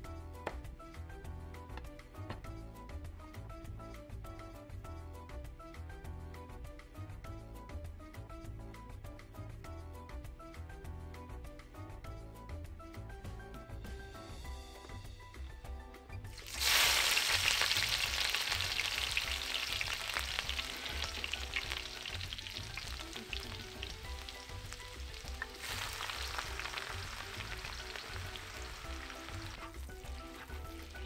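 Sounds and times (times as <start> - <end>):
quiet background music: 0.0 - 31.0
hot oil sizzling in a wok: 16.4 - 31.0.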